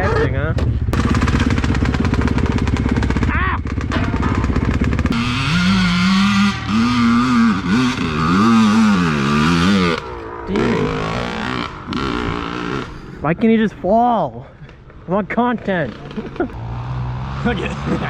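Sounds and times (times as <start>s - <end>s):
dirt bike engine running: 0.0s - 13.2s
dirt bike engine revving: 0.9s - 13.2s, 15.8s - 18.0s.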